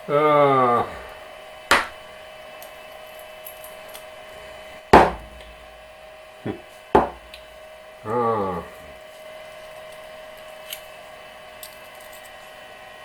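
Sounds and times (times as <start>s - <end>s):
faint steady hum: 0.0s - 13.0s
metal knocks at lathe chuck: 5.0s - 5.4s, 7.0s - 7.4s.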